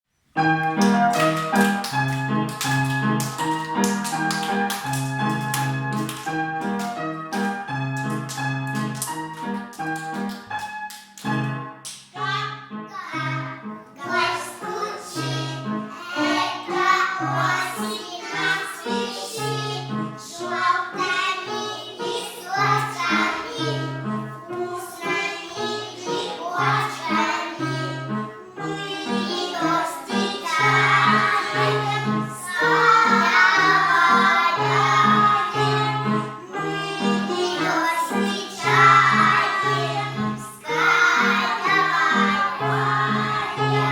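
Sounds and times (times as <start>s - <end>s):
children singing: 12.2s - 43.9s.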